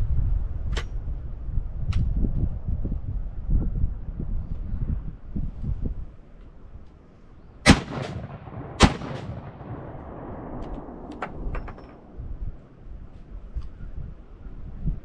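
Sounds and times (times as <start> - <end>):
shotgun shots with echo: 7.7 - 12.1.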